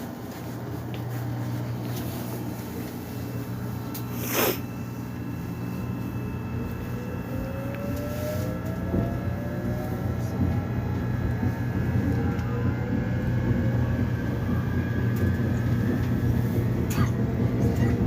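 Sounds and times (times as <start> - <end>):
subway train low hum: 0.0 - 18.0
traction motor whine rising: 5.0 - 16.3.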